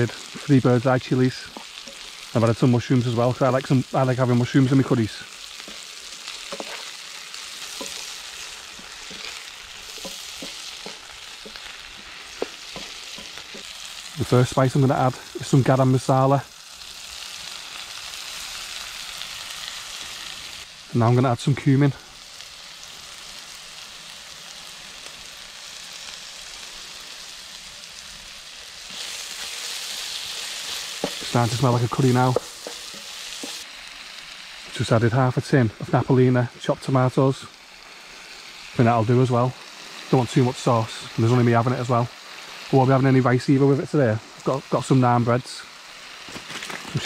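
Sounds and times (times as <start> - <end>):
food sizzling in a frying pan: 0.0 - 47.0
wooden spoon stirring food: 1.5 - 2.6, 4.6 - 14.1, 28.9 - 33.6
wooden spoon knocking on pan: 7.7 - 8.1, 8.7 - 11.7, 12.4 - 13.7, 31.0 - 31.3.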